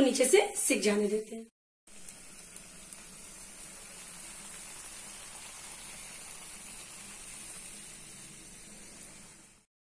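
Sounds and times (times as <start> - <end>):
batter sizzling in a pan: 1.9 - 9.7.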